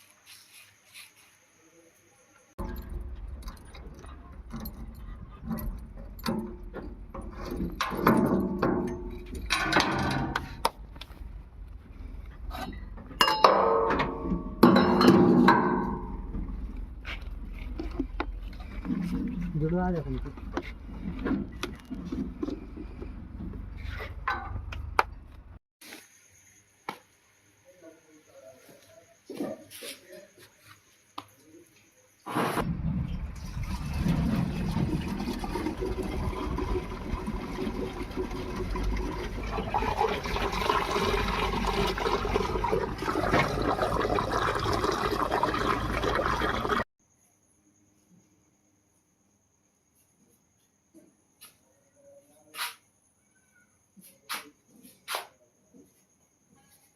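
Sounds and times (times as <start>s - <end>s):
metal parts clanking: 2.6s - 10.6s.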